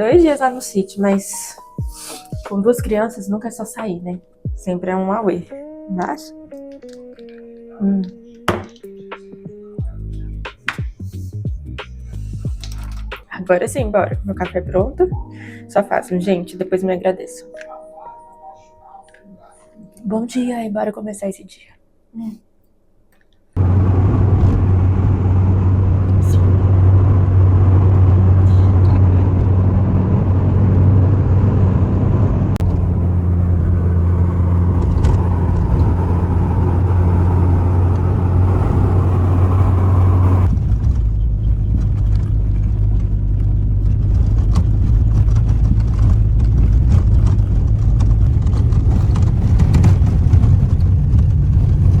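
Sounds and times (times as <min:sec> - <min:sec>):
small clicks and rattles: 0:12.6 - 0:13.2, 0:41.4 - 0:52.0
engine and road drone: 0:23.6 - 0:52.0
rough rumble: 0:23.6 - 0:52.0.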